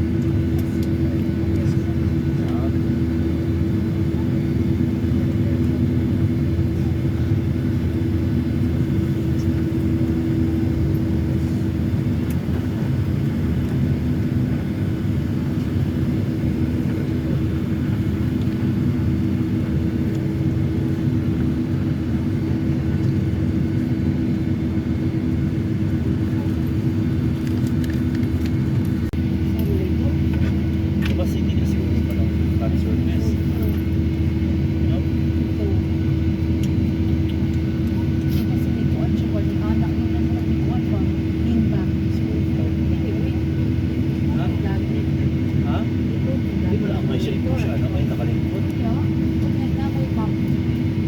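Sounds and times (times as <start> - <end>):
aircraft cabin rumble and hum: 0.0 - 51.0.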